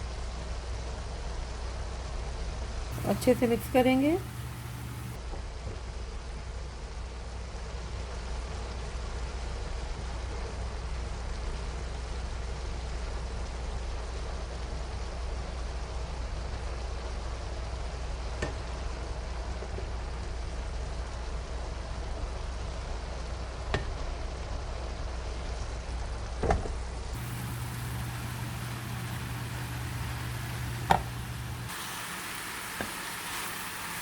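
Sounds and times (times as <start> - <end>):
noodles sizzling in a pan: 3.0 - 5.2, 27.2 - 34.0
utensil knocking against pan: 30.7 - 31.2.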